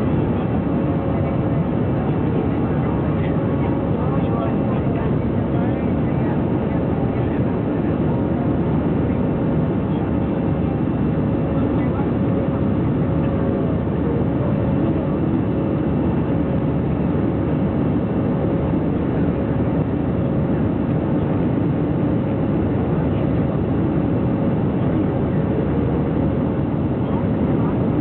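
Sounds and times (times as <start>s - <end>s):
airplane cabin noise: 0.0s - 28.0s.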